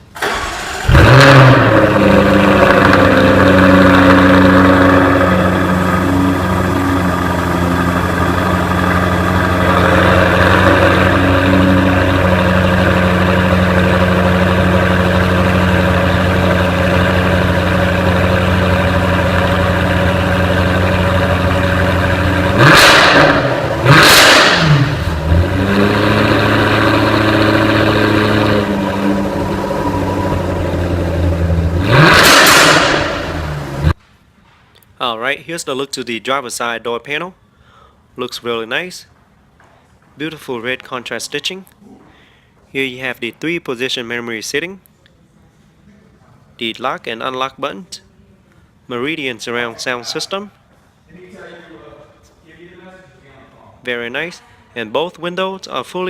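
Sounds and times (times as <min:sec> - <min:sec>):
car engine starting and idling: 0:00.0 - 0:34.0
car engine revving: 0:00.2 - 0:34.0.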